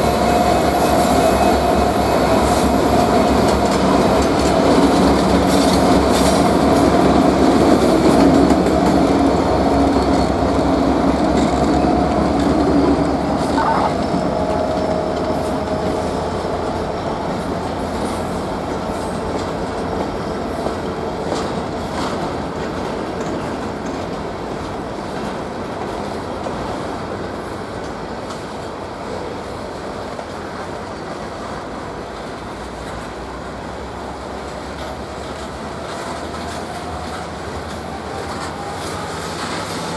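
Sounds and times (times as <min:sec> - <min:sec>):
train wheels rumbling on track: 0:00.0 - 0:39.9
steady tones: 0:08.3 - 0:19.5.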